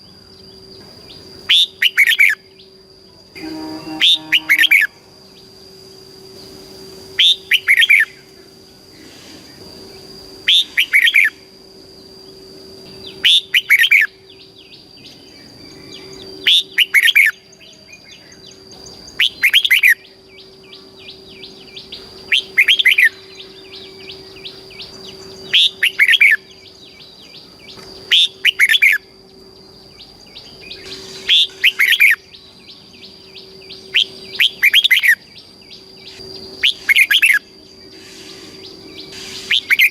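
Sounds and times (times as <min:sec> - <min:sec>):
faint steady high tone: 0:00.0 - 0:08.9
bird singing whistled phrase: 0:03.4 - 0:04.9.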